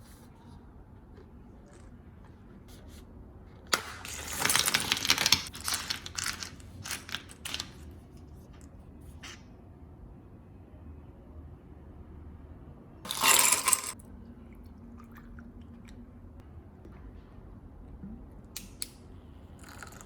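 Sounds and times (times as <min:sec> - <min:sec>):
small hard objects clinking: 0:04.0 - 0:07.9, 0:13.1 - 0:14.0.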